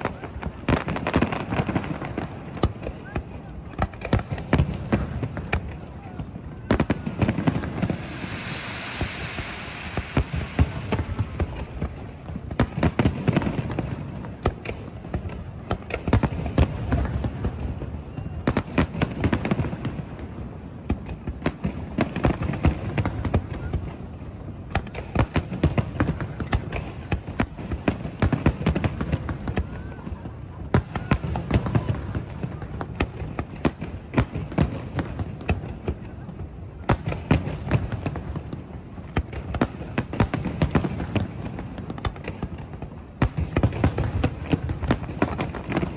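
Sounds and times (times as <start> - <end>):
fireworks bangs: 0.0 - 23.9, 36.8 - 45.9
crackling sparks: 6.9 - 12.2
low rumble: 7.6 - 11.7.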